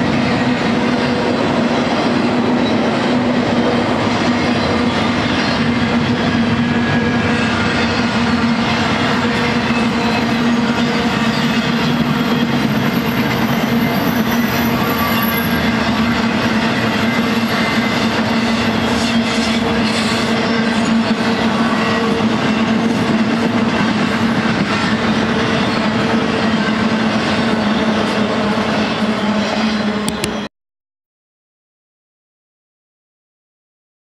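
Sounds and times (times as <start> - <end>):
freight train cars rolling past: 0.0 - 30.5
faint high wheel squeal: 9.6 - 16.0.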